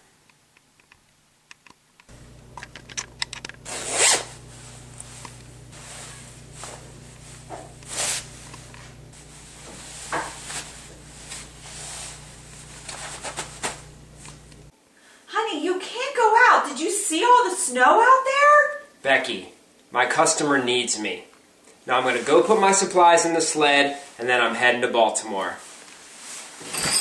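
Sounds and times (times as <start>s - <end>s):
rustling: 0.8s - 14.7s, 25.5s - 27.0s
low steady hum: 2.0s - 15.2s
zipper rasping: 3.6s - 5.2s.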